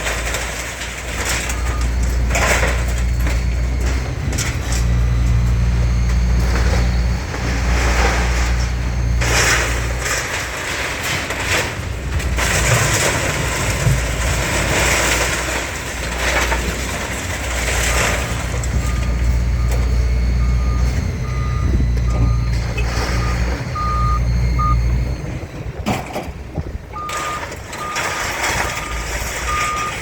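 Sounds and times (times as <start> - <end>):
diesel engine rumbling: 0.0 - 30.0
reversing alarm beeping: 1.2 - 10.2, 17.6 - 25.7, 26.9 - 30.0.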